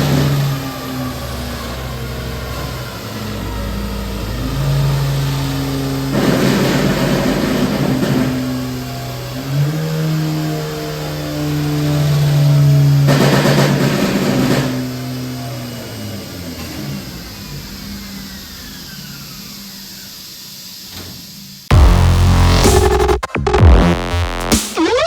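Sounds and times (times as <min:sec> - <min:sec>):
car engine revving on dyno: 0:00.0 - 0:20.1, 0:21.7 - 0:25.0
exhaust crackle: 0:21.7 - 0:25.0.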